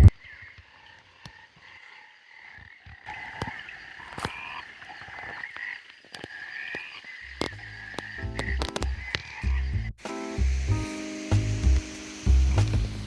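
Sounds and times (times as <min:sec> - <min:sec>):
frogs calling in chorus: 0:00.0 - 0:09.9
sharp clicks: 0:03.2 - 0:09.5.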